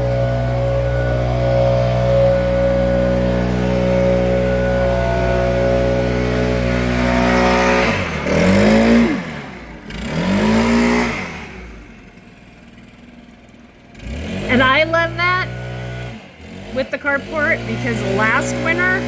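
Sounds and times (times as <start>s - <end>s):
leaf blower engine revving: 0.0s - 19.0s.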